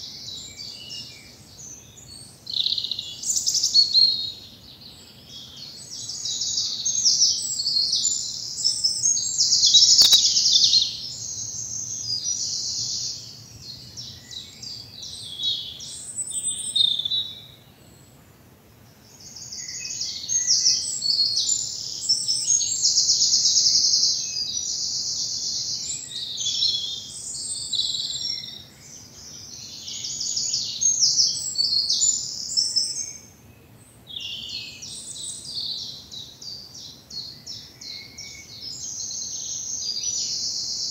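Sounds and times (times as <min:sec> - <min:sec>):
faint woodland background noise: 0:00.0 - 0:40.9
songbirds trilling and warbling: 0:00.0 - 0:40.9.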